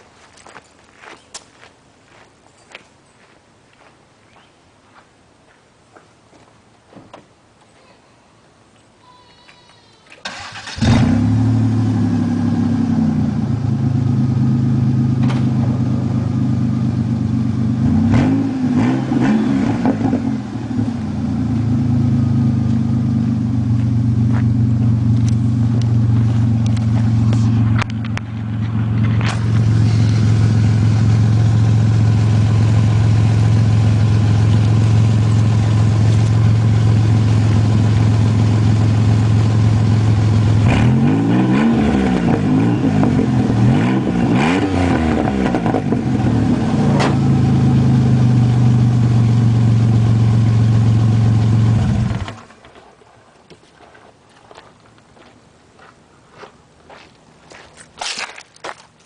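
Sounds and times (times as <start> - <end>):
car engine with unmuffled exhaust: 10.4 - 52.7.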